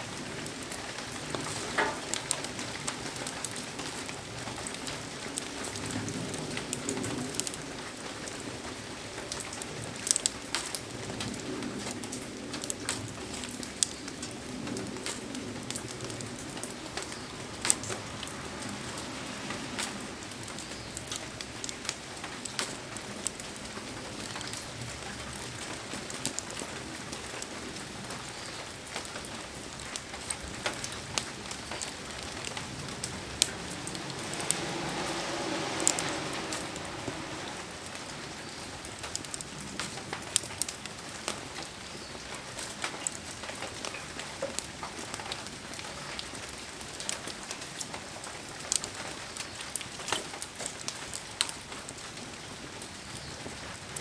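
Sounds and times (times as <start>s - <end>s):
heavy rain falling: 0.0s - 54.0s
sharp ticks and pops: 9.2s - 18.4s.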